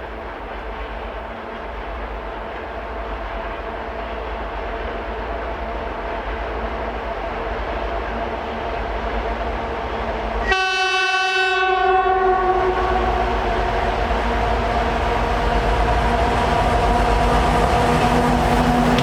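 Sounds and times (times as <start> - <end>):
engine and train rumble: 0.0 - 19.0
locomotive horn: 10.4 - 13.8.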